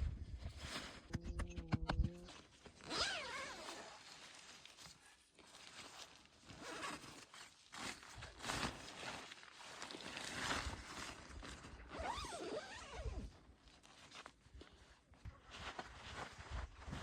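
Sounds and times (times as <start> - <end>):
zipper pulled: 0.6 - 4.2, 6.5 - 8.0, 11.9 - 13.3.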